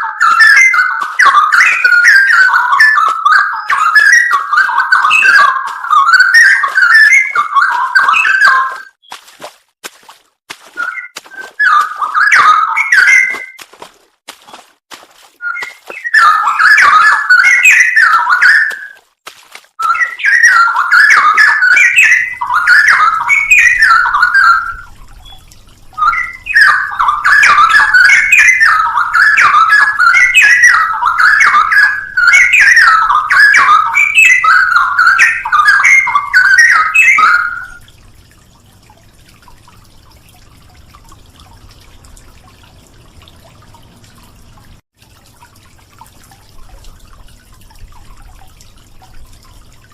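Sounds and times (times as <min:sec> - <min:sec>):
bird singing whistled warbles: 0:00.0 - 0:09.2, 0:10.8 - 0:13.6, 0:15.4 - 0:19.0, 0:19.8 - 0:37.9.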